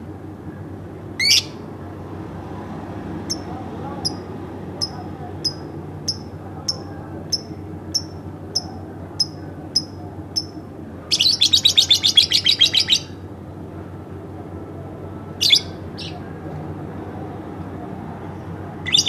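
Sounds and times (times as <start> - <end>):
lovebird chattering trill: 3.3 - 13.2
lovebird chirping: 4.8 - 13.2, 15.4 - 16.2.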